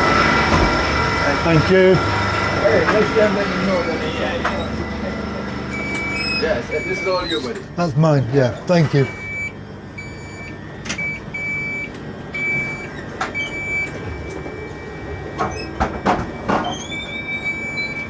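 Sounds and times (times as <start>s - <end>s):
low hum of train: 0.0s - 18.0s
train door warning beeps: 5.7s - 7.6s, 8.9s - 18.0s.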